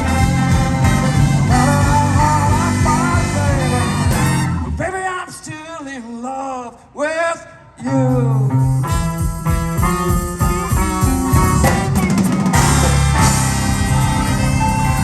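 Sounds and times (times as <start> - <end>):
drum fill: 0.0 - 4.5, 8.7 - 15.0
live blues rock band: 0.0 - 4.8, 8.1 - 15.0.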